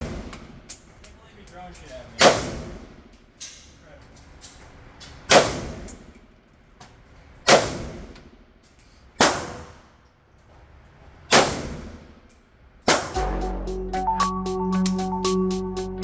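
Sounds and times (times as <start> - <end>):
gunshots with echo: 2.2 - 2.9, 5.3 - 5.8, 9.2 - 9.8, 11.3 - 12.0, 12.9 - 13.4.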